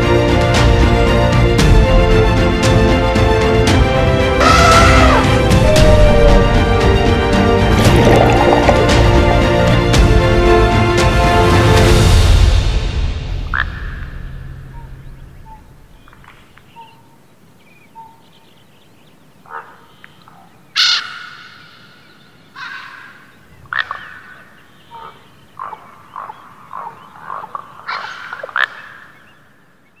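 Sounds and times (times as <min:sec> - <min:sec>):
bird calls: 0:04.4 - 0:06.7, 0:13.5 - 0:30.0.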